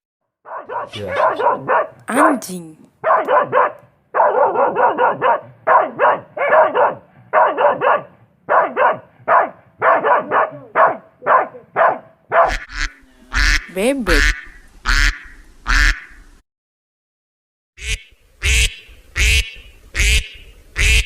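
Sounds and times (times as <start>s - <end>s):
dog barking: 0.4s - 2.0s, 3.0s - 12.7s.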